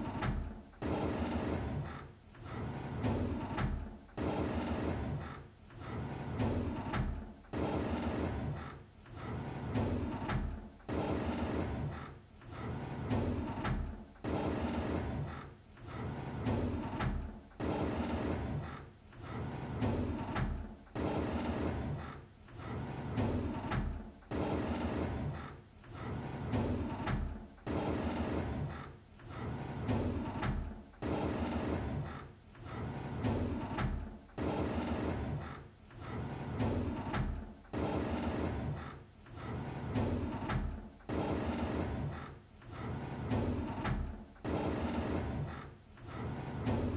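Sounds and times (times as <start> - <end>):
drawer sliding open: 18.0 - 46.9.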